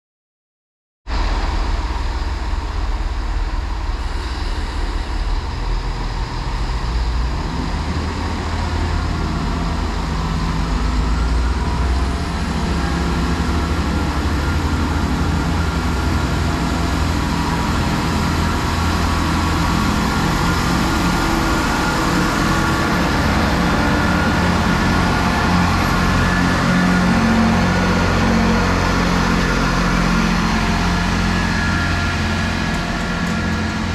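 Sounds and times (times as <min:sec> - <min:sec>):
diesel train engine humming: 0:01.1 - 0:33.9.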